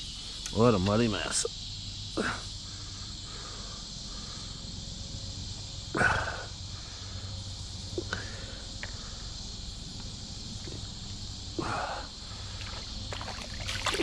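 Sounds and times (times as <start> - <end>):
crickets and insects chirring: 0.0 - 14.0.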